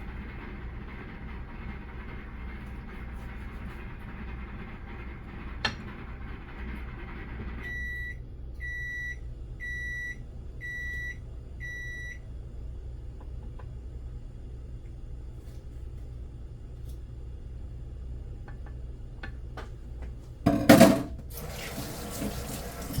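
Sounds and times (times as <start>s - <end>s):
microwave oven humming: 0.0s - 23.0s
microwave beeping: 5.6s - 13.6s.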